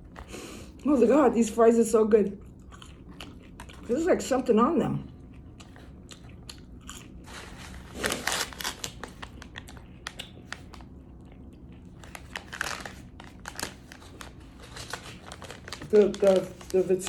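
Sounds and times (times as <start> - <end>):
chewing fries: 0.0 - 1.6, 2.4 - 17.0
rustling: 12.0 - 17.0.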